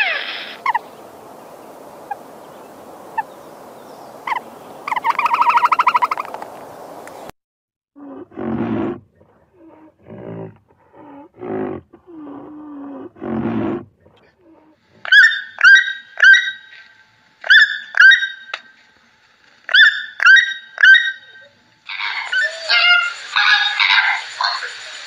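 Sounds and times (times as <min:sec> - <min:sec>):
toucan croaking calls: 0:00.0 - 0:01.0, 0:01.9 - 0:06.5, 0:15.0 - 0:18.7, 0:19.7 - 0:25.0
low animal calls: 0:19.7 - 0:24.4.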